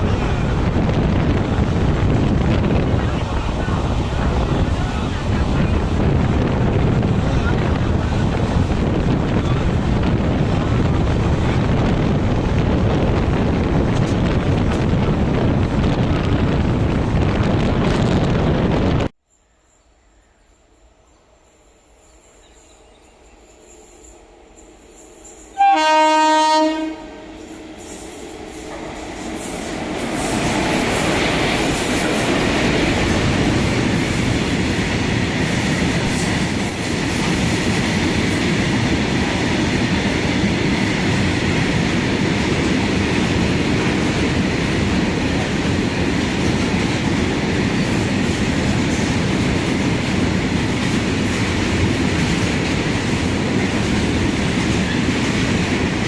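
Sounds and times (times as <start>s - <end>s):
train running on rails: 0.0s - 56.0s
train horn blast: 25.5s - 27.7s.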